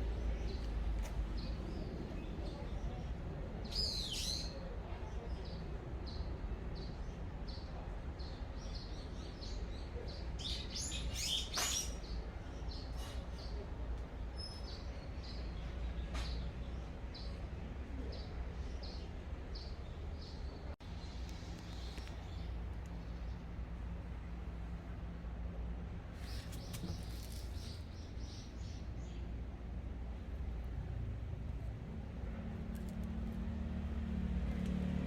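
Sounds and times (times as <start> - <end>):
low wind rumble: 0.0 - 3.8
birds chirping: 18.0 - 24.7, 26.2 - 29.5.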